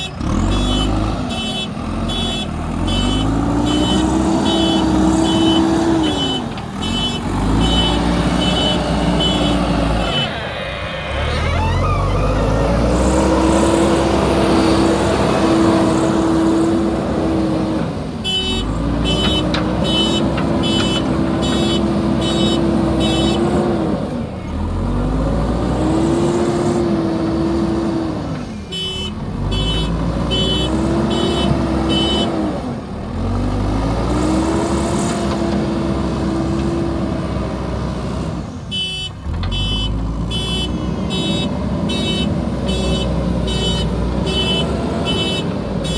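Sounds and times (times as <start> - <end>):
diesel engine revving: 0.0 - 45.9
reversing alarm beeping: 2.9 - 14.6.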